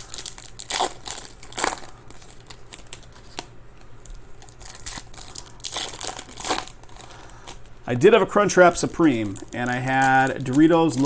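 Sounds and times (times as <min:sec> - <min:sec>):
wrappers crinkling and tearing: 0:00.0 - 0:11.0.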